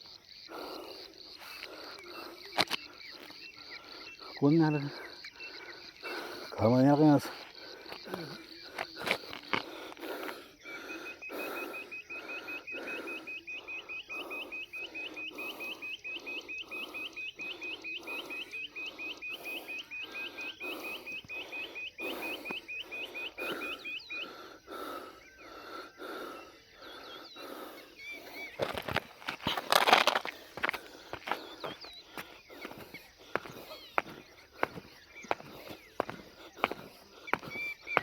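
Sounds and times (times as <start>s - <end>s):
bird chirping: 0.1s - 38.0s
footsteps on a road: 1.4s - 3.5s, 6.8s - 10.5s, 27.4s - 38.0s.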